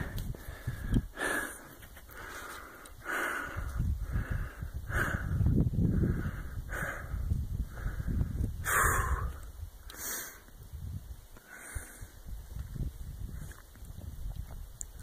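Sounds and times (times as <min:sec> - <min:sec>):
person breathing hard: 0:00.0 - 0:10.5, 0:11.4 - 0:12.3
wind rumbling on microphone: 0:00.0 - 0:15.0.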